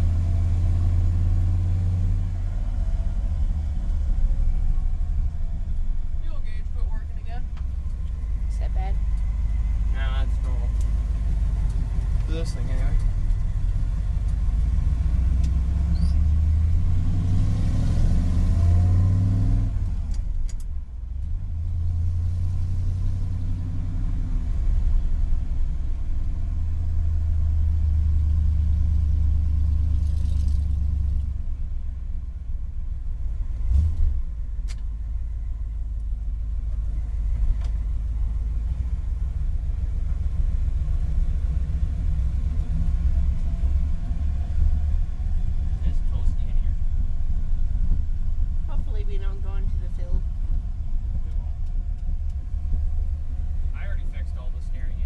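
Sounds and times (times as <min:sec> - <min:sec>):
truck engine pulling: 0:00.0 - 0:32.0.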